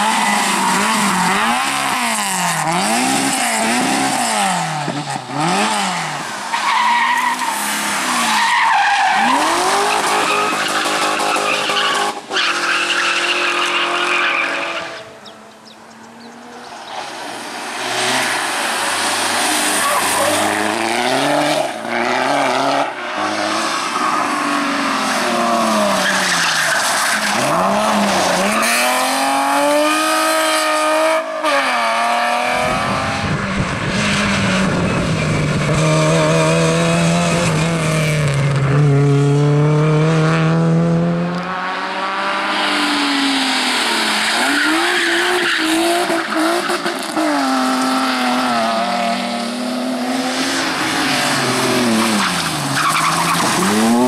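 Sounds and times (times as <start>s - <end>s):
tyres squealing and skidding: 0.0s - 15.6s, 16.2s - 30.5s, 42.3s - 49.1s, 50.2s - 54.0s
rally car engines revving: 0.0s - 54.0s.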